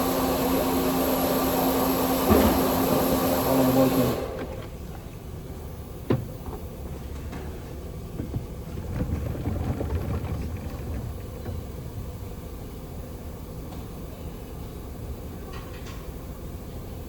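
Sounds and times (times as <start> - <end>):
low steady rumble: 4.5 - 15.3
objects clattering: 7.2 - 12.3.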